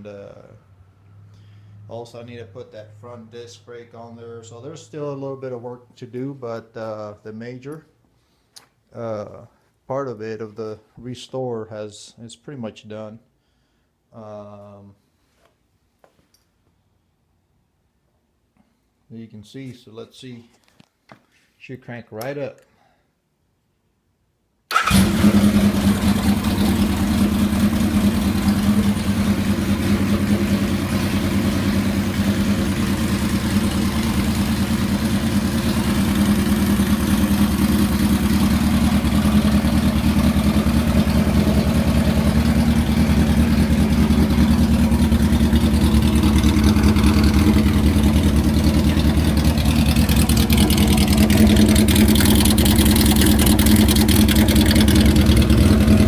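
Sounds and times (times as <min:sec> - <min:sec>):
motorcycle engine idling: 0:25.1 - 0:56.0.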